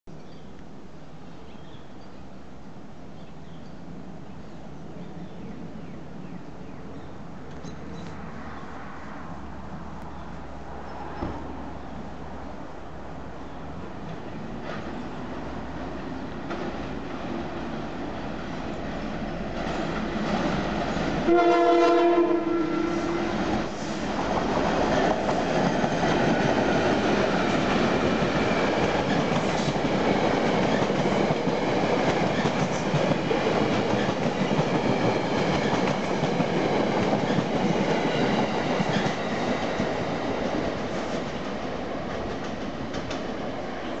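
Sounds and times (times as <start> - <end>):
locomotive horn: 21.2 - 23.4
train wheels rolling and clattering: 23.2 - 43.7.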